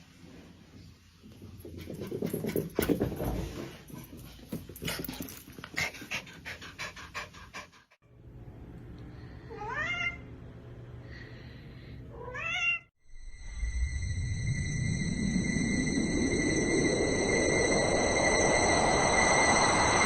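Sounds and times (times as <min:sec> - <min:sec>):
cat meowing: 0:09.5 - 0:10.2, 0:12.1 - 0:12.9.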